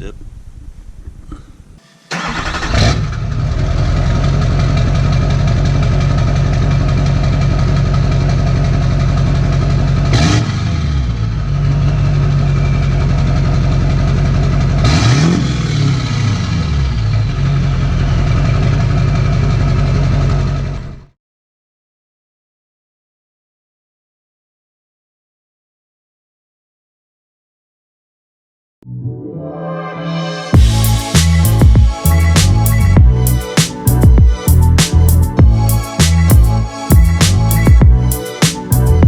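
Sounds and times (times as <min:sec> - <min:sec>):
diesel engine idling and revving: 0:02.1 - 0:21.1, 0:30.6 - 0:39.0.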